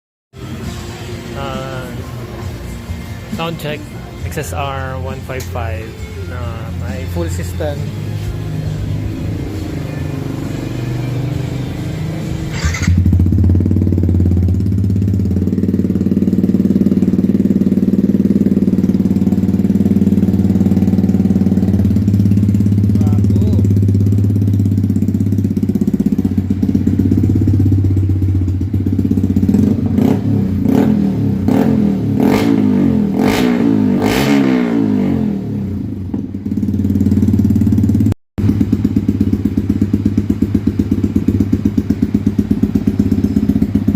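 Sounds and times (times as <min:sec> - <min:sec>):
motorcycle engine idling: 0:01.2 - 0:31.6, 0:35.7 - 0:43.9
engine throttle blips: 0:03.4 - 0:35.9.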